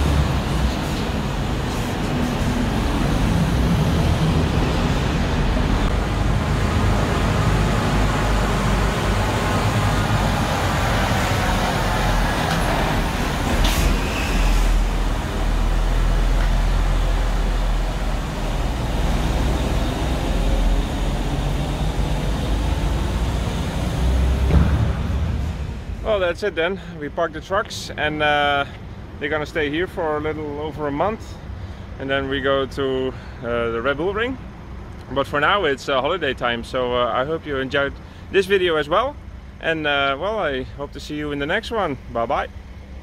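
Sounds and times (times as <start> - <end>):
truck engine rumbling: 0.0 - 43.0
sharp knock: 24.4 - 25.4.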